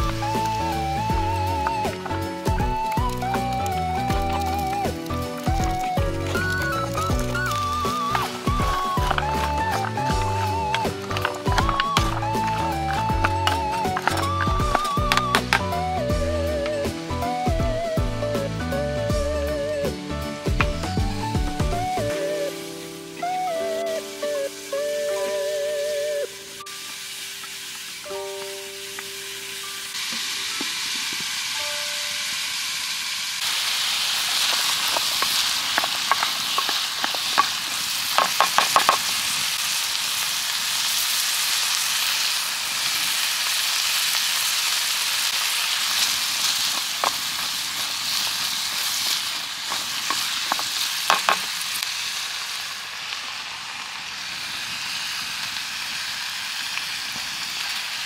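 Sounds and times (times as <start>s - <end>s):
food sizzling in a pan: 0.0s - 58.0s
utensil clicking against pan: 34.4s - 39.0s.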